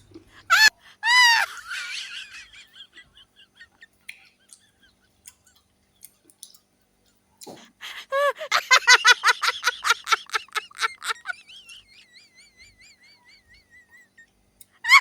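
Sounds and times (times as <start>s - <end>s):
high-pitched cries: 0.5s - 4.6s, 10.3s - 15.0s
faint chirps: 11.4s - 14.8s.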